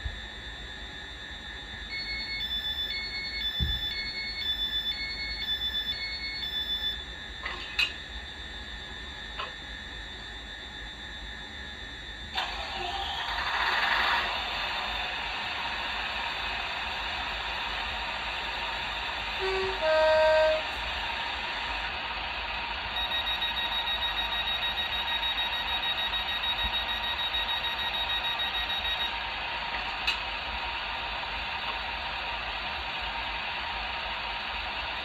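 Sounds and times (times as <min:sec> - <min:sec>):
two-tone train horn: 0:19.4 - 0:20.9
rapid high electronic beeping: 0:23.0 - 0:29.1.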